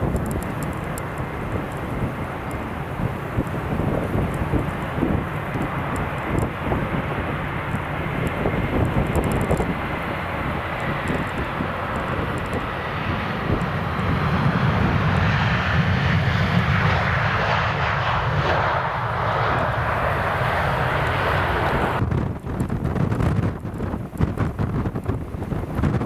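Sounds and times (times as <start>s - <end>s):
jet airliner engines roaring: 0.0s - 26.0s
low rumble: 3.0s - 26.0s.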